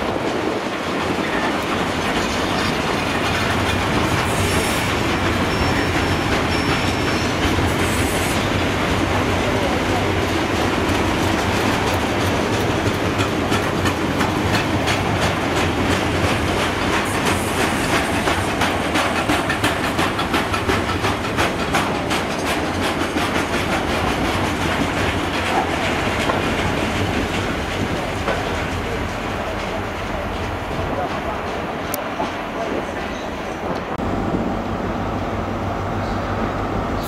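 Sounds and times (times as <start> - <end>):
wheels clacking over track: 8.6 - 34.0.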